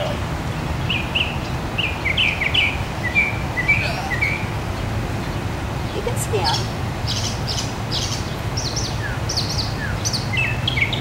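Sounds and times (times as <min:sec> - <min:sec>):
small songbird chirping: 0:00.0 - 0:11.0.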